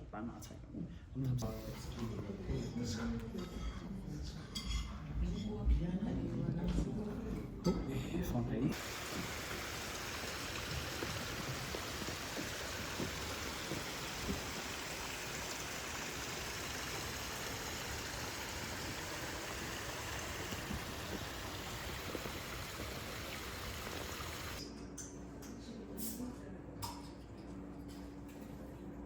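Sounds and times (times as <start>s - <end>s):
water rushing: 8.7s - 24.6s
low hum: 8.8s - 24.6s.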